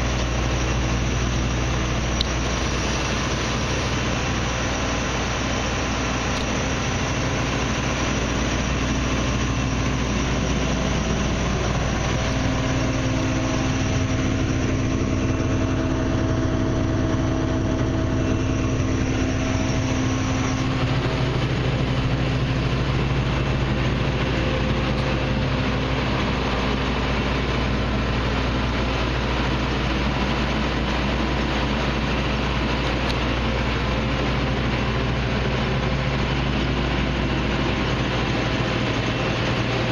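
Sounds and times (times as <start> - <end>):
combine harvester engine idling: 0.0 - 39.9
faint whine: 0.0 - 39.9.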